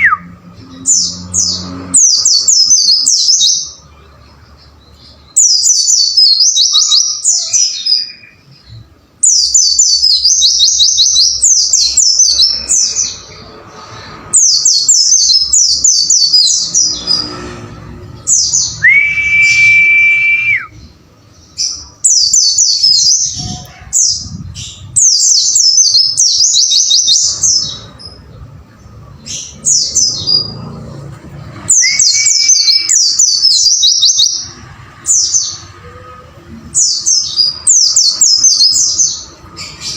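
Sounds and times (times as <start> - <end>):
long flat whistle: 18.8 - 20.8
bird twittering chirps: 31.7 - 35.6.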